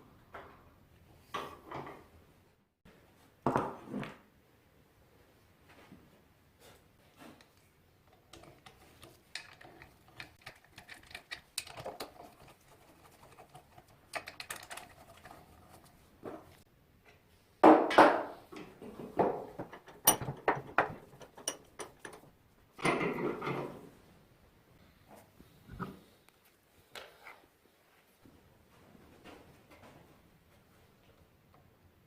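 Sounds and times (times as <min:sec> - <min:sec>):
tools clicking and tapping: 0:08.1 - 0:15.8, 0:18.5 - 0:23.1.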